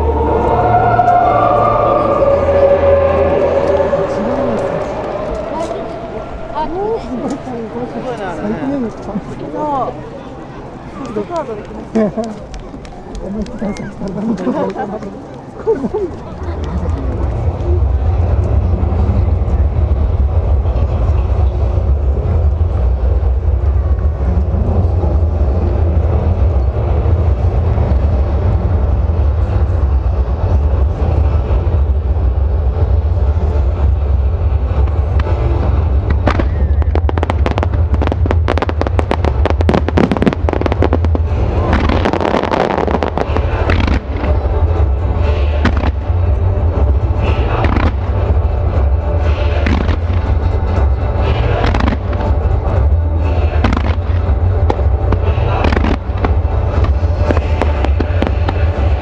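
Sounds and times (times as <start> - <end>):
fireworks bursting: 34.7 - 59.0
fireworks bangs: 34.8 - 59.0
music over loudspeakers: 34.9 - 59.0.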